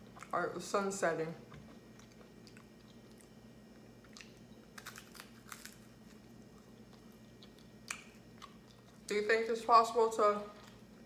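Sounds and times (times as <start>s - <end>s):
low room hum: 0.0s - 11.0s
pizza chewing: 1.4s - 9.1s.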